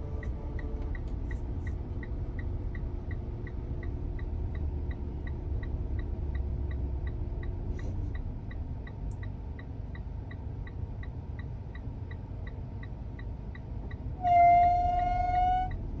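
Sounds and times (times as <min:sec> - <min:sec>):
car air conditioning drone: 0:00.0 - 0:16.0
light regular ticking: 0:00.6 - 0:14.2
horn-like tone: 0:14.2 - 0:15.8.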